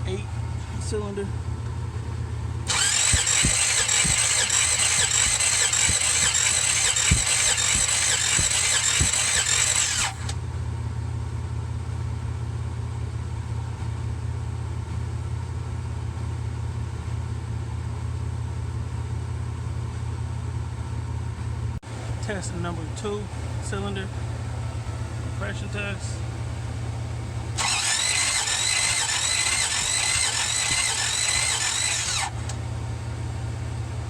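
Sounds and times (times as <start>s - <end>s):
starter motor cranking engine: 2.6s - 10.4s, 27.3s - 32.8s
steady low hum: 21.3s - 34.0s.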